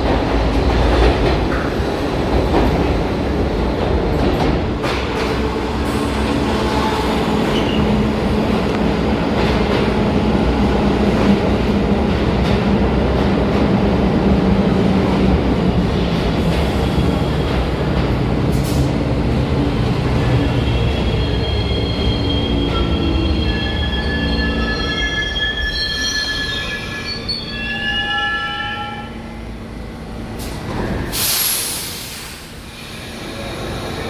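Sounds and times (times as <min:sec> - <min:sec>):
subway train running: 0:00.0 - 0:34.0
high-pitched wheel squeal: 0:20.9 - 0:29.2.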